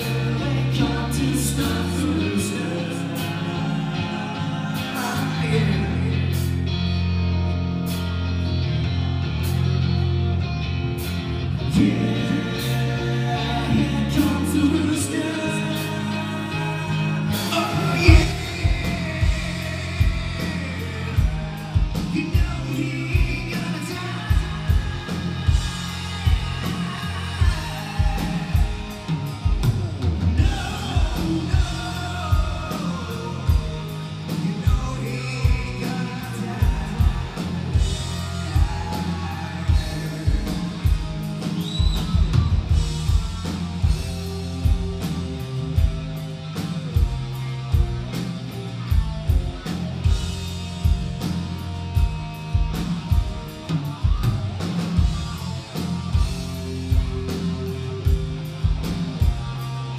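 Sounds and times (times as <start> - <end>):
person singing: 0.0 - 6.6, 11.6 - 29.6, 30.2 - 42.3
bass guitar: 0.0 - 59.9
electric guitar: 0.0 - 59.9
live rock band: 0.0 - 59.9
drum kit beat: 17.3 - 59.9.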